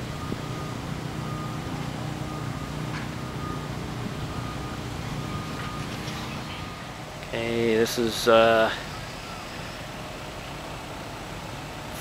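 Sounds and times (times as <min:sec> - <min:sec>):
reversing alarm beeping: 0:00.0 - 0:07.2, 0:08.7 - 0:11.3
low engine rumble: 0:00.0 - 0:12.0.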